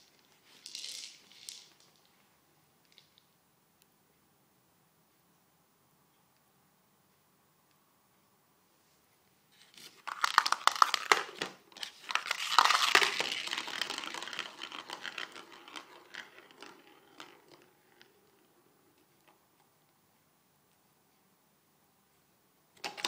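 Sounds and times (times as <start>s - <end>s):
crinkly toy rustling and crackling: 9.5s - 17.7s.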